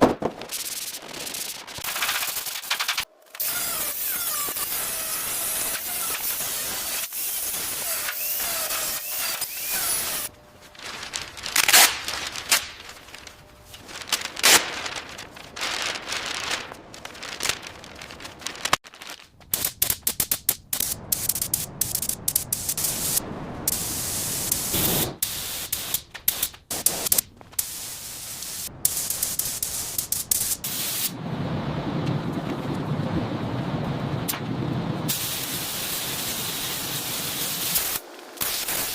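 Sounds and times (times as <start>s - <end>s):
hissing spray bursts: 0.4s - 10.3s, 19.5s - 31.2s, 35.1s - 38.9s.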